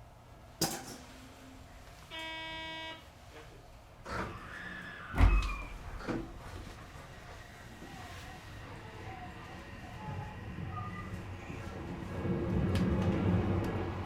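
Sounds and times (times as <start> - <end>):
door buzzer tone: 2.1 - 3.0
train doors clunking shut: 5.1 - 6.8.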